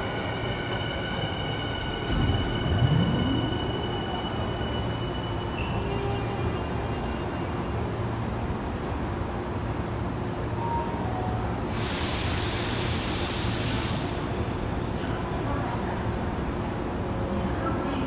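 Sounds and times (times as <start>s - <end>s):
loud even hiss: 11.7s - 14.3s.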